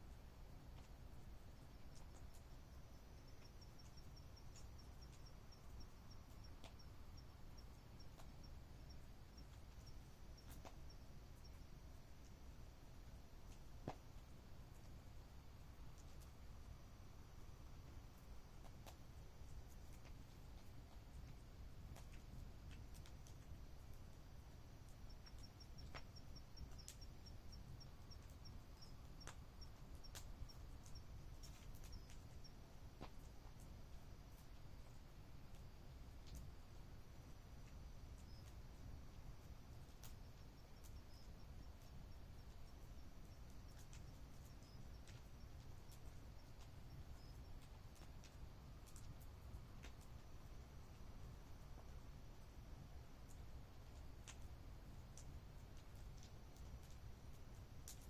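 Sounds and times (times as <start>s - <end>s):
campfire crackling: 0.0s - 58.0s
faint insect chirping: 0.0s - 58.0s
faint sharp clicks: 3.3s - 8.4s, 22.0s - 23.5s, 24.8s - 32.4s, 35.5s - 36.5s, 53.3s - 54.5s, 55.1s - 57.0s.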